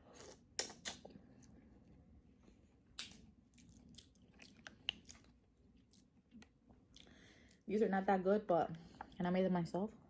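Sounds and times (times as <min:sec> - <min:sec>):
person chewing food: 0:02.8 - 0:07.6.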